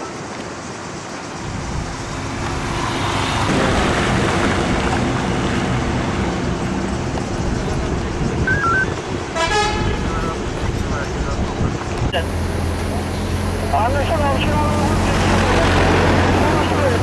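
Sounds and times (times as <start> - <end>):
vehicle engine humming: 1.2 - 17.0.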